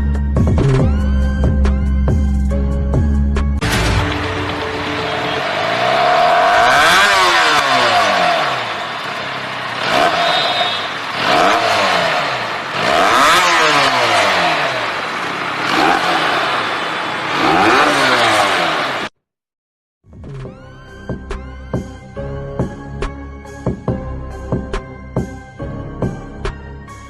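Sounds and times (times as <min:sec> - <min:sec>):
motorcycle engine revving: 0:03.8 - 0:19.2.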